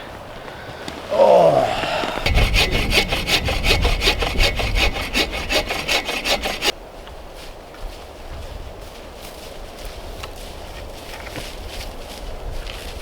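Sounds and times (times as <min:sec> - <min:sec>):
hand saw cutting wood: 0:02.2 - 0:06.7.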